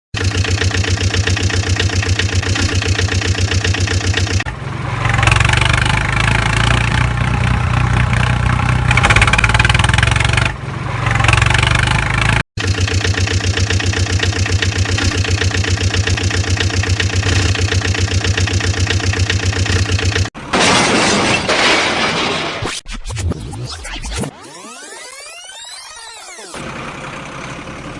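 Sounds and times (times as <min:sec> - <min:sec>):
tractor engine running: 0:00.1 - 0:20.6, 0:26.6 - 0:27.9.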